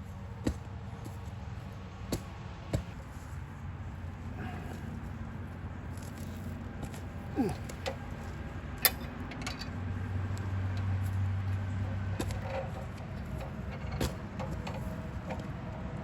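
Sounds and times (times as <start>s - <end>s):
metallic clicks of hand tools: 8.8s - 9.8s.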